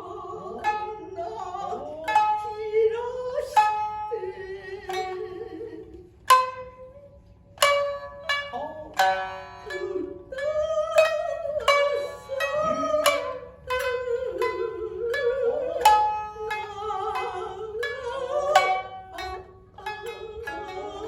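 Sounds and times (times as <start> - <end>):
shamisen plucks: 0.0 - 21.0.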